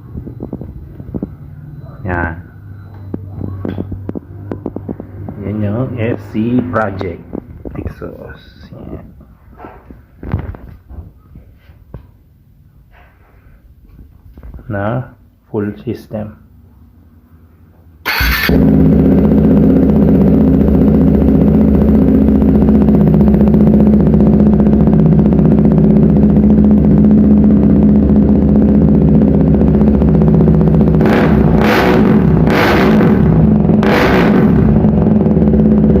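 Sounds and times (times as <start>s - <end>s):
motorcycle engine idling and revving: 0.0s - 8.7s, 18.0s - 36.0s.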